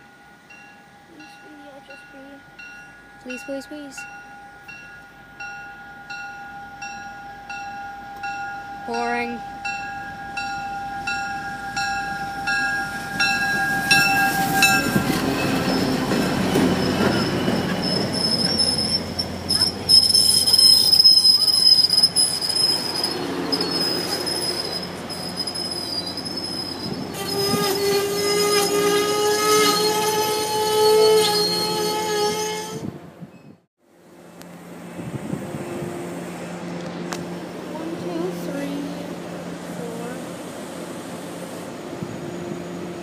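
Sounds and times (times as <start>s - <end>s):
train bell ringing: 0.0s - 26.9s
diesel train passing: 0.0s - 43.0s
steel wheel squeal: 12.4s - 33.6s.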